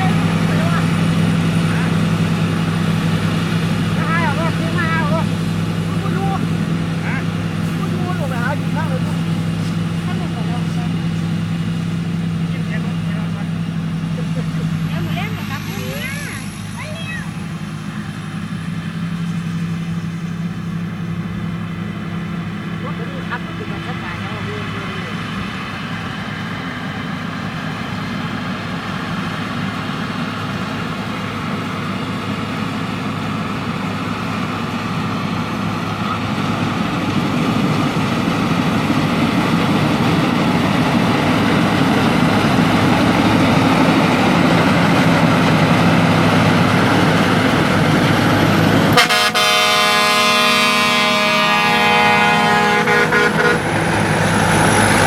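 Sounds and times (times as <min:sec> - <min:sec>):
combine harvester engine running: 0:00.0 - 0:55.0
horn sounding: 0:48.9 - 0:53.9.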